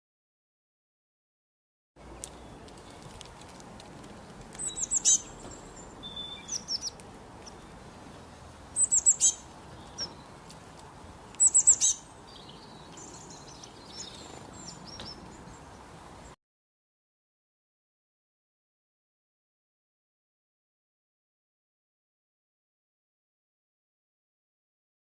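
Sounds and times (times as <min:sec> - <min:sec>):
bird high chirps: 0:04.6 - 0:10.4, 0:11.3 - 0:16.4.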